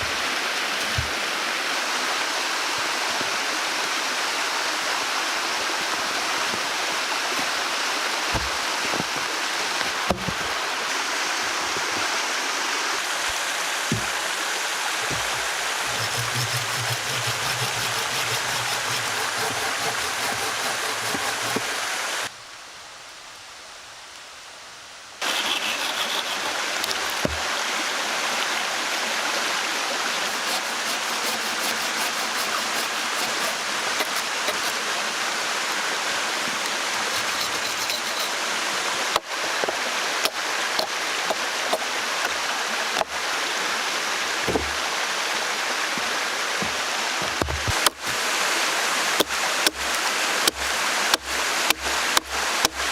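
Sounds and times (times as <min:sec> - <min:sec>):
running water rushing: 0:00.0 - 0:22.3, 0:25.2 - 0:52.9
sharp knocks: 0:13.9 - 0:14.2.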